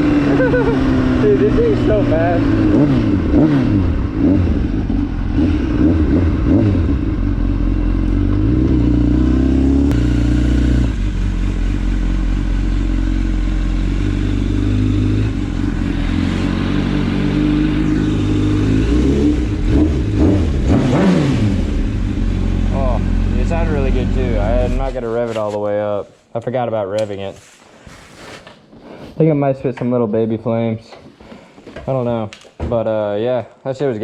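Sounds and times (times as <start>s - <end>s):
motorcycle engine revving: 0.0s - 25.3s.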